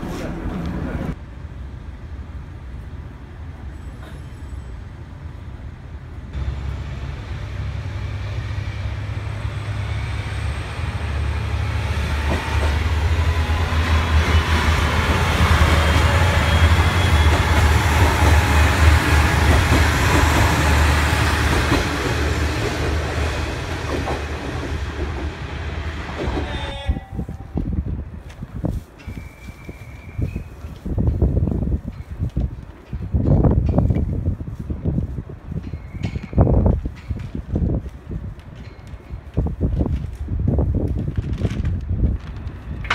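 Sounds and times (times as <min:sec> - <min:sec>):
railcar engine rumbling: 0:00.0 - 0:42.9
train wheels clicking over rail joints: 0:11.5 - 0:25.4, 0:30.6 - 0:34.8, 0:35.5 - 0:40.2.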